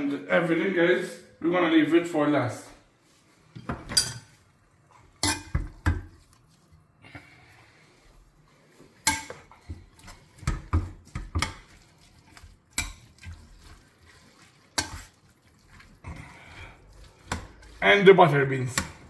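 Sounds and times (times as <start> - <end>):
metal spoon scraping a pot: 9.0 - 18.1.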